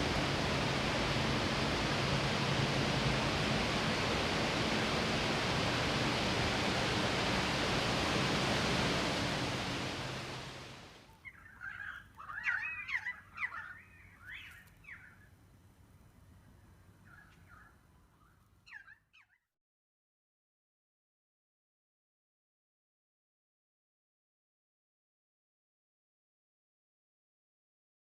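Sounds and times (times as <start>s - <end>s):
steady rushing noise: 0.0s - 11.1s
bird chattering call: 11.2s - 15.1s.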